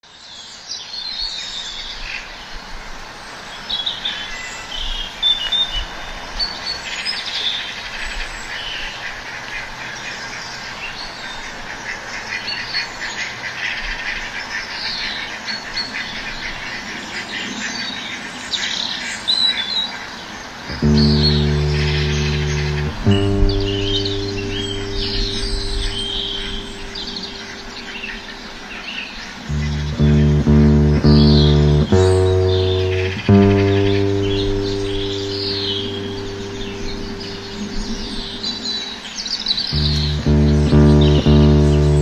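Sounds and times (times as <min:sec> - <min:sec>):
small birds chirping: 0:20.7 - 0:42.0.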